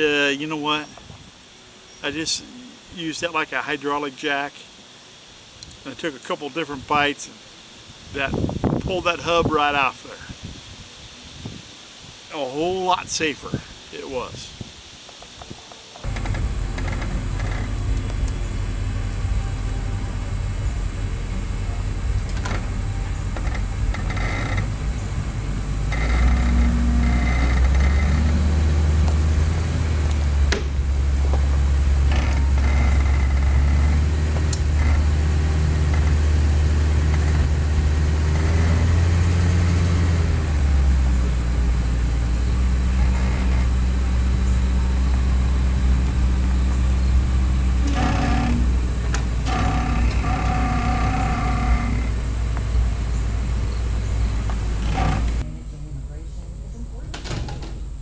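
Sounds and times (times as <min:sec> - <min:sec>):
vehicle engine rumbling: 0:16.0 - 0:58.0.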